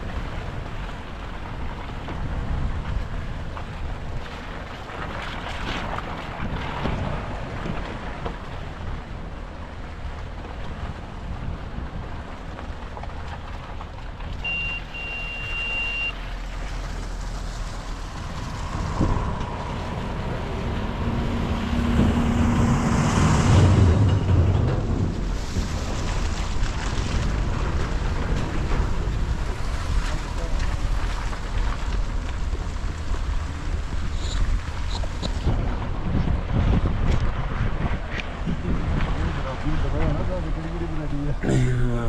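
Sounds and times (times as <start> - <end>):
wind buffeting microphone: 0.0 - 14.6, 16.2 - 42.0
vehicle traffic rumble: 0.0 - 42.0
short high beep: 14.4 - 16.2.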